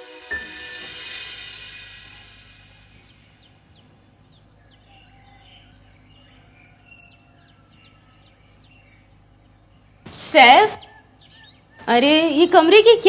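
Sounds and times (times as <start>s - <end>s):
music: 0.0s - 3.0s
low background hum: 0.9s - 13.0s
birds chirping: 1.7s - 13.0s.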